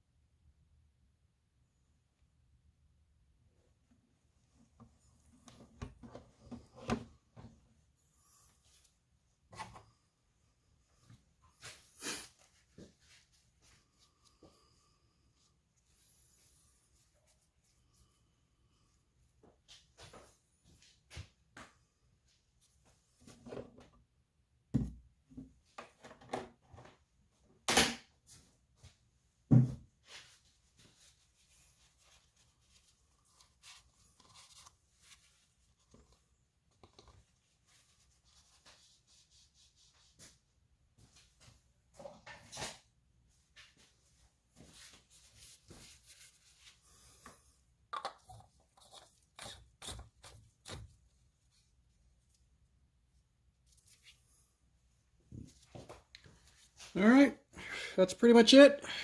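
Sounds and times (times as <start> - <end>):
rustling and scraping: 30.0 - 42.9, 43.5 - 47.6.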